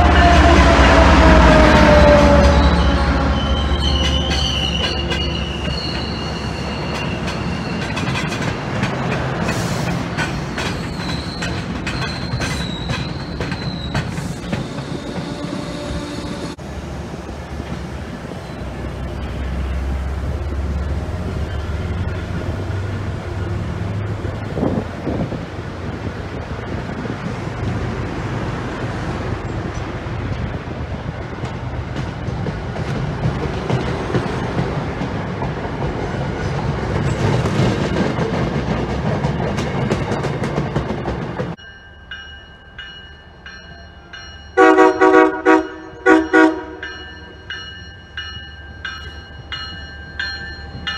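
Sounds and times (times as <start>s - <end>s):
train rolling noise: 0.0s - 50.9s
train wheels squealing: 2.2s - 8.5s, 9.5s - 16.6s, 18.3s - 19.8s, 21.3s - 23.6s
wheels clicking over rail joints: 4.0s - 15.7s
wind on microphone: 23.8s - 31.4s.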